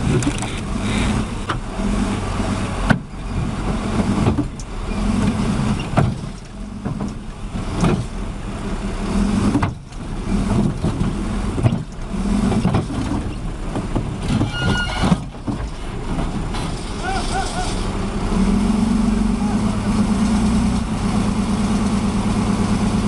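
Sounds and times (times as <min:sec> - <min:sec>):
heavy vehicle engine running: 0:00.0 - 0:23.0.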